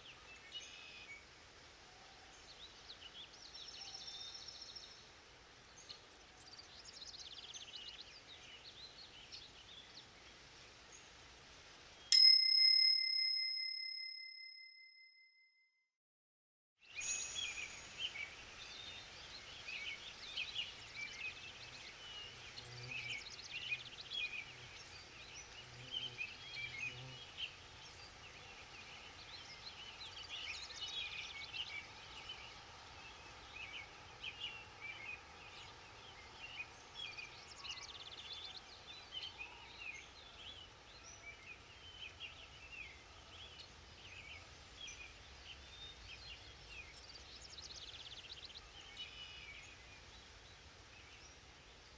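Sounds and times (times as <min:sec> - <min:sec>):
small birds chirping and trilling: 0:17.0 - 0:51.9.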